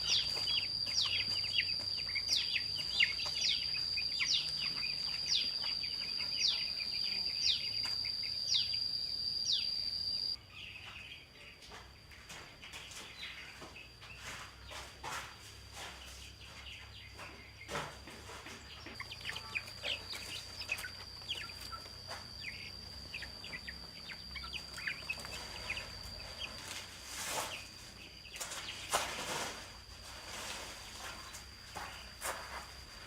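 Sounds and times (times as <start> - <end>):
steady high-pitched whine: 0.0 - 10.4, 18.8 - 33.0
birds chirping: 0.0 - 14.9, 15.8 - 26.8.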